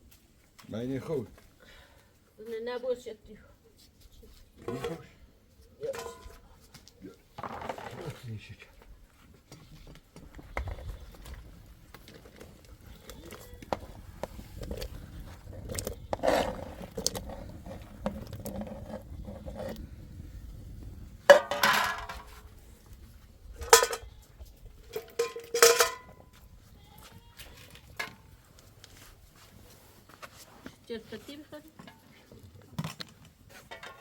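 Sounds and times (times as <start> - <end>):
pots and utensils clanking: 5.8 - 6.4, 21.3 - 22.4, 23.6 - 24.1, 24.9 - 26.2, 33.6 - 34.0
loud clanks with ring: 25.0 - 26.2.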